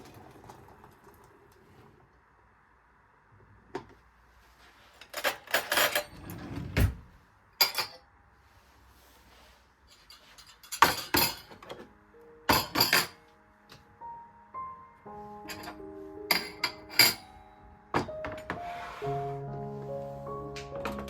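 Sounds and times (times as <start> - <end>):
glass and dishes clinking: 10.0 - 11.8, 12.5 - 13.2, 15.5 - 18.6
soft piano music: 11.2 - 21.0.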